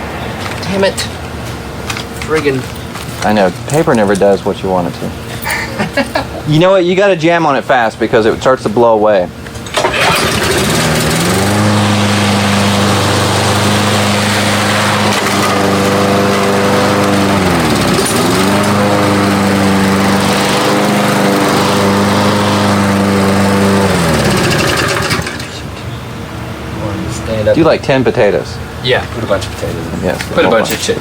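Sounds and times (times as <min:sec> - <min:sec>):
lawn mower engine running: 0:09.3 - 0:26.7.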